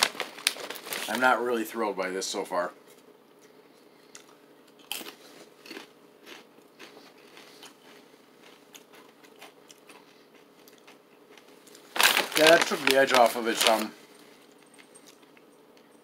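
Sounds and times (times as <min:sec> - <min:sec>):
tortilla chip crunching: 0:04.2 - 0:13.9.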